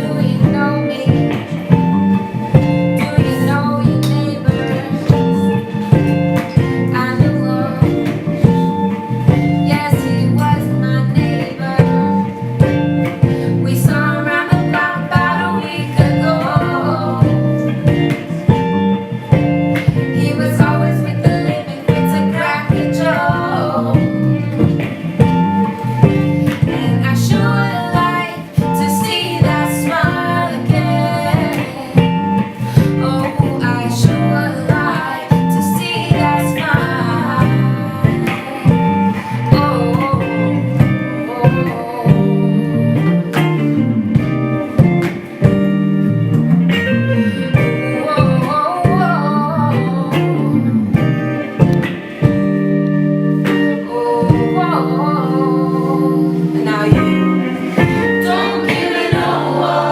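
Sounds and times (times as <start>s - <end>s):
steady drum beat: 0.0s - 42.6s, 56.9s - 59.9s
bass: 0.0s - 59.9s
guitar: 0.0s - 59.9s.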